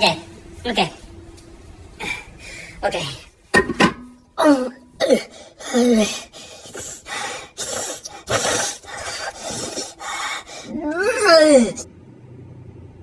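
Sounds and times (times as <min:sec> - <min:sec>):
man gagging and dry-heaving: 0:02.0 - 0:03.3, 0:03.9 - 0:11.9
man groaning: 0:04.4 - 0:11.9.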